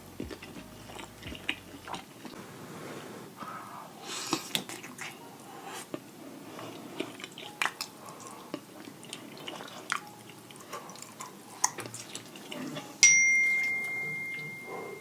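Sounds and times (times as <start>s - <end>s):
wet chewing: 0.0s - 2.4s, 6.6s - 13.0s
high bell-like ring: 13.0s - 15.0s.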